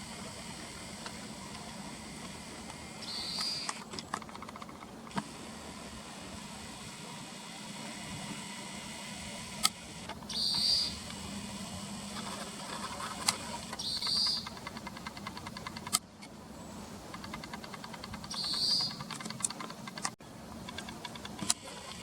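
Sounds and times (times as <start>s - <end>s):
small bird calling: 0.0s - 4.7s, 10.2s - 11.1s, 13.0s - 15.8s, 16.6s - 20.0s
sharp clicks: 1.0s - 5.3s, 9.6s - 11.2s, 13.2s - 16.3s, 17.1s - 22.0s.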